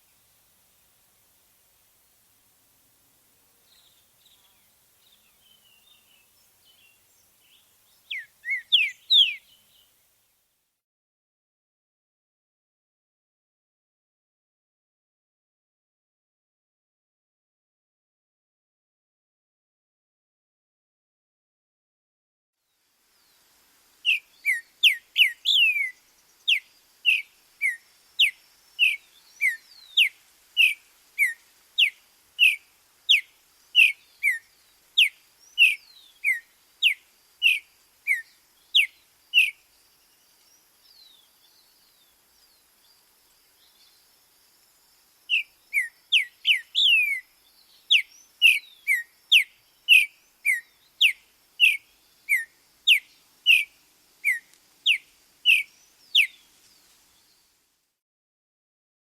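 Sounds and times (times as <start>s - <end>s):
songbird whistling: 8.0s - 9.6s, 24.0s - 39.6s, 45.3s - 56.4s.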